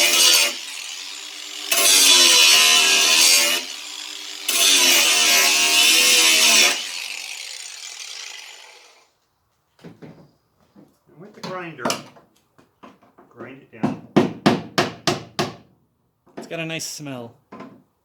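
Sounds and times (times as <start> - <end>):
power grinder grinding metal: 0.0 - 9.1.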